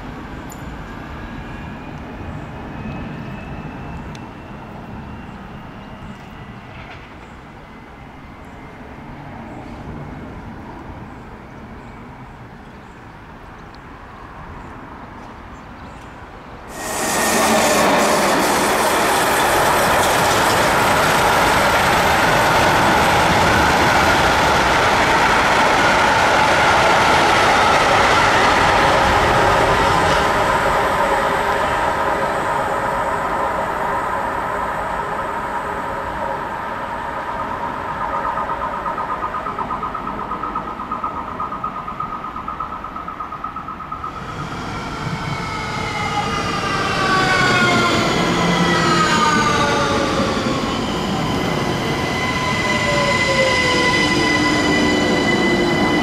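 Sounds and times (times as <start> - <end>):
train rumbling past: 0.0 - 56.0
gliding whining tones: 16.7 - 56.0.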